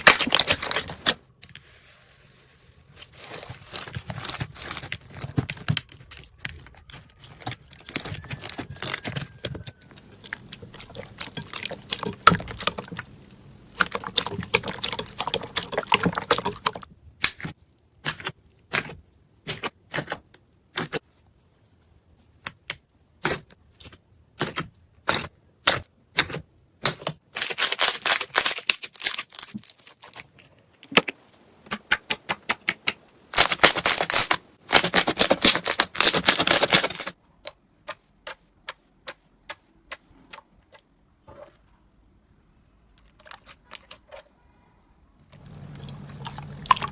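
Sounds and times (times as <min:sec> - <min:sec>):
slime crackling and squishing: 0:00.0 - 0:01.2, 0:02.3 - 0:20.2, 0:27.4 - 0:37.1
sharp clicks and pops: 0:30.8 - 0:40.8.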